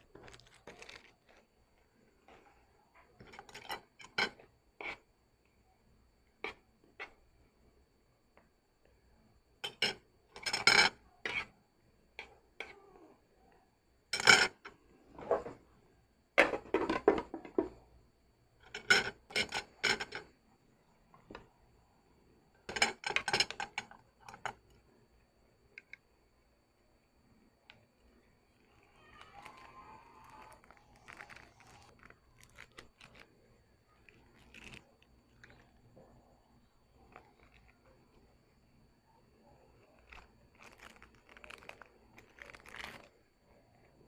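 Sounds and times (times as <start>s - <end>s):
utensils scraping dishes: 18.7s - 20.2s.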